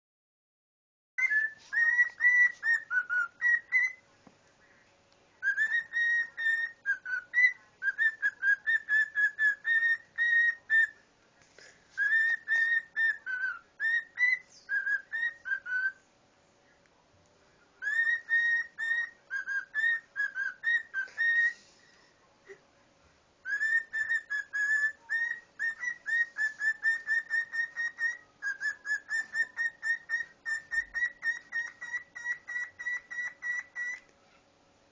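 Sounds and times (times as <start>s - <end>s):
cockatiel whistling: 1.2s - 4.0s, 5.4s - 11.0s, 12.0s - 16.0s, 17.8s - 21.6s, 23.4s - 34.1s.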